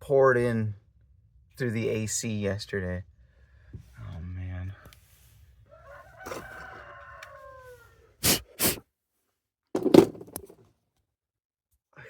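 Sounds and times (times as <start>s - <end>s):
rooster crowing: 5.6s - 8.2s.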